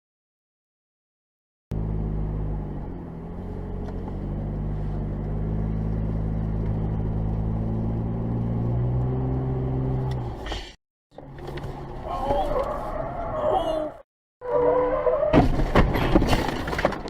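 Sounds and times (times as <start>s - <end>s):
car engine running: 1.7s - 10.4s.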